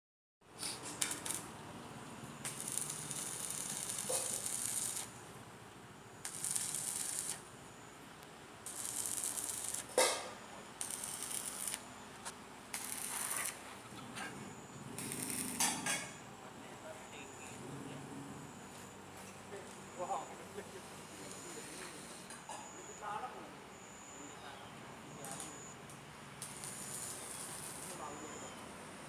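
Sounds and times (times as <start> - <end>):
arc welding crackling and hissing: 0.6 - 5.5, 6.1 - 16.2, 18.7 - 22.9, 25.2 - 25.6, 26.4 - 28.7.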